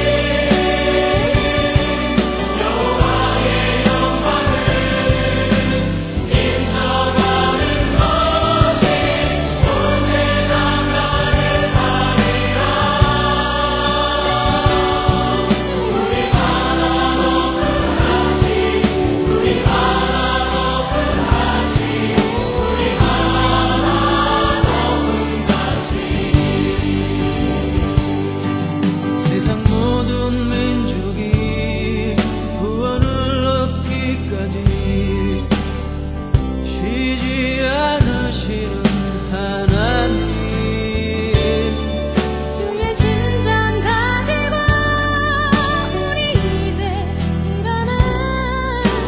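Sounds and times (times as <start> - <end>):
instrumental accompaniment with beat: 0.0 - 30.7, 38.9 - 46.5
choir singing praise song: 0.0 - 49.0.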